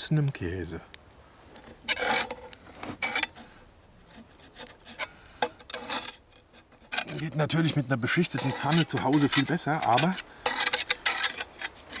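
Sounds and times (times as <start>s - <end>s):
utensil scraping metal lid: 4.1s - 12.0s.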